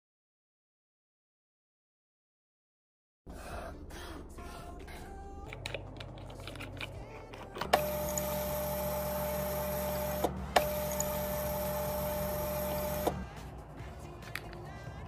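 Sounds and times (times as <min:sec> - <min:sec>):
small electric motor whirring: 0:07.7 - 0:13.3.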